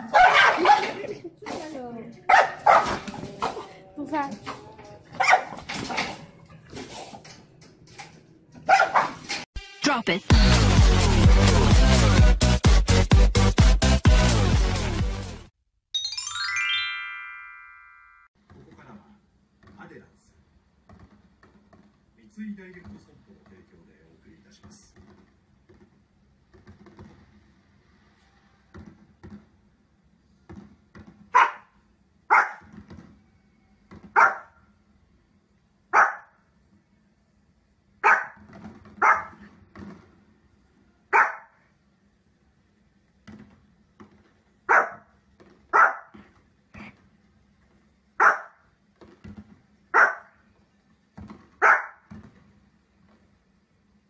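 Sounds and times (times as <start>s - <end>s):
small dog barking: 0.0s - 1.0s, 2.3s - 3.0s, 5.2s - 5.6s, 8.7s - 9.2s, 31.4s - 31.7s, 32.3s - 32.6s, 34.2s - 34.6s, 35.9s - 36.3s, 38.0s - 38.4s, 39.0s - 39.4s, 41.1s - 41.6s, 44.7s - 45.1s, 45.7s - 46.2s, 48.2s - 48.6s, 50.0s - 50.3s, 51.6s - 52.0s.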